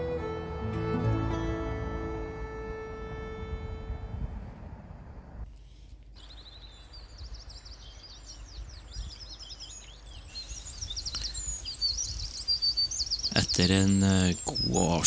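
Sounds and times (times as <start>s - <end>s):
steady low rumble: 0.0s - 5.5s
birds twittering: 6.2s - 15.0s.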